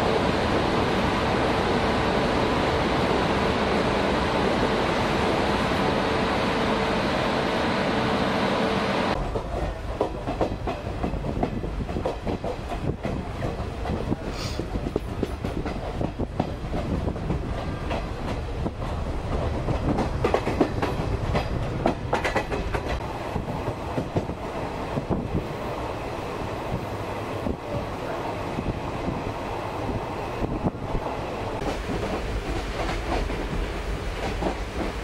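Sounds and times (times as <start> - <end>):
train wheels rumbling on rails: 8.2 - 35.0
wheels clacking over rail joints: 9.1 - 23.0.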